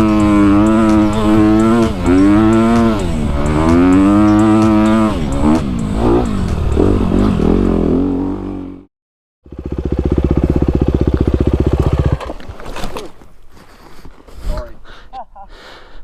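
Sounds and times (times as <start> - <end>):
dirt bike engine revving: 0.0 - 8.9, 9.5 - 12.4.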